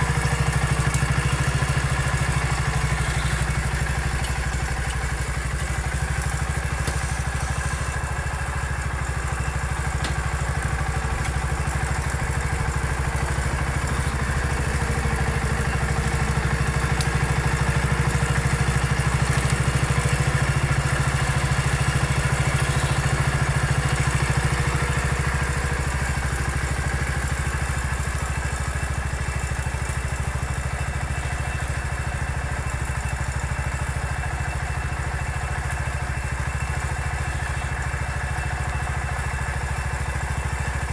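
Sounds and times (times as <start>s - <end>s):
clatter: 0.0s - 40.9s
small engine running: 0.0s - 40.9s.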